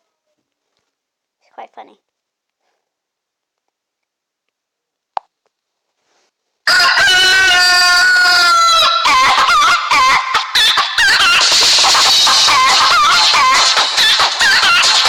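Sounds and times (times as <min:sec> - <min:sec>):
rooster crow ringtone: 0:06.7 - 0:11.7.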